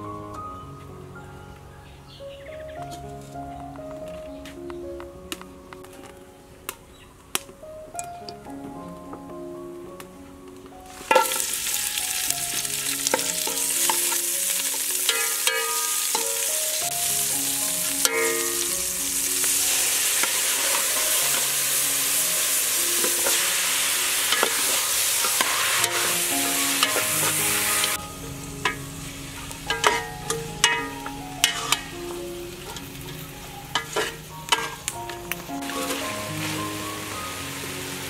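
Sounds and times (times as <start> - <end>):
aromatics sizzling in hot oil: 10.9 - 38.0
metal ladle stirring: 11.1 - 16.9, 18.0 - 18.9, 23.0 - 28.0, 29.6 - 35.0.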